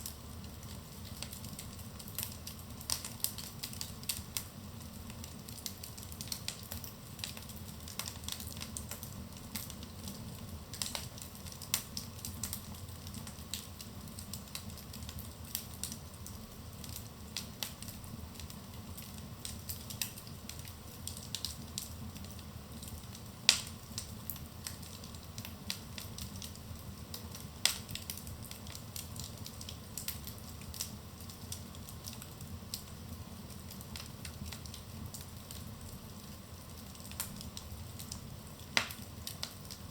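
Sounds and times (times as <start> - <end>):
fire rumbling and crackling: 0.0 - 39.9
loud fire pops: 21.3 - 26.5, 27.1 - 31.0, 36.8 - 39.8.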